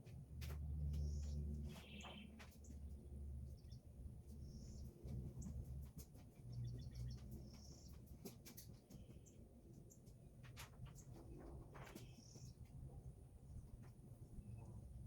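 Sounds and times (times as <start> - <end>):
bird chirping: 1.0 - 2.4.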